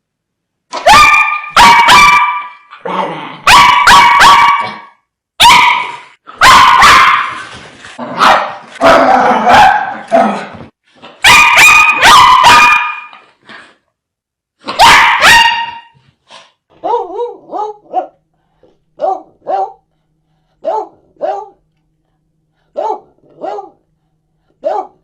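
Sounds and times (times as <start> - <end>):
dogs barking aggressively: 0.7 - 2.8, 3.4 - 13.2, 14.6 - 16.0, 19.0 - 19.8, 22.7 - 23.8.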